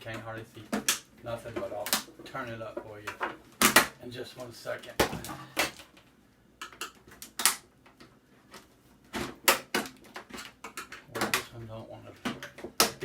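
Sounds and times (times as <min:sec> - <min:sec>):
sharp snaps: 0:06.6 - 0:07.7.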